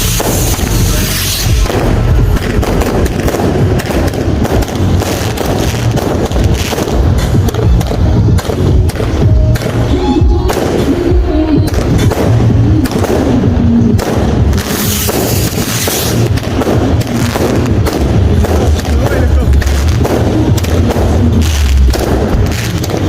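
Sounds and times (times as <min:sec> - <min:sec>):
hissing burst: 0:00.0 - 0:07.4, 0:14.6 - 0:22.9
fireworks and firecrackers banging: 0:00.0 - 0:23.0
low rumble: 0:00.0 - 0:23.0.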